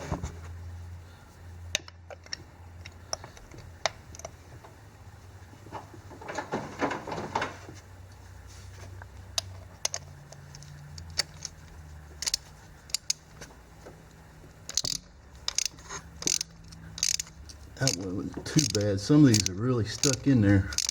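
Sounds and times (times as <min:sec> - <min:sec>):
low steady hum: 0:00.0 - 0:20.9
socket wrench clicking: 0:09.3 - 0:11.6, 0:12.2 - 0:13.2, 0:14.6 - 0:20.9.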